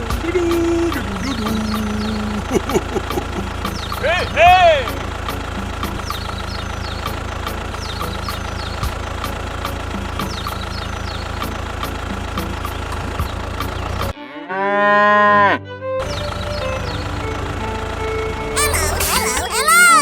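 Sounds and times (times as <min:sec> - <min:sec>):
small tractor engine idling: 0:00.0 - 0:14.1, 0:16.0 - 0:18.6
regular ticking: 0:00.6 - 0:14.0.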